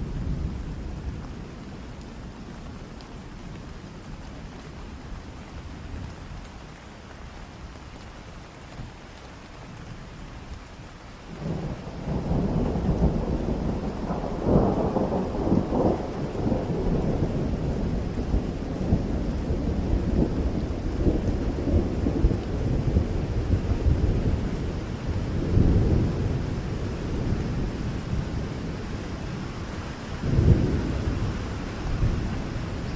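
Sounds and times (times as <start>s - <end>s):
steady rain: 0.0s - 32.9s
thunder rumbling: 11.3s - 32.9s.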